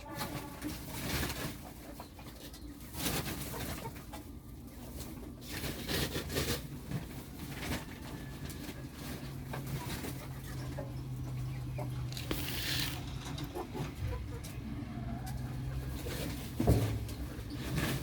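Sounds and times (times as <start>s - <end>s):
taps and rustling of birds: 0.1s - 18.0s
pigeons cooing: 7.5s - 18.0s.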